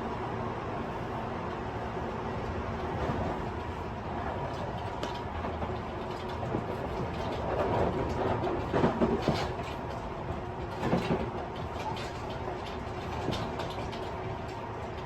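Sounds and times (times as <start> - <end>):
train rattling and clattering: 0.0 - 15.0
train wheels rumbling on rail: 0.0 - 15.0.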